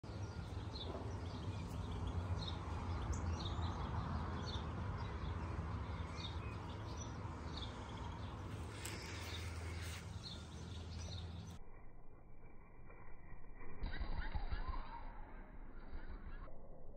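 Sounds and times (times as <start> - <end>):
small birds chirping: 0.0 - 11.6.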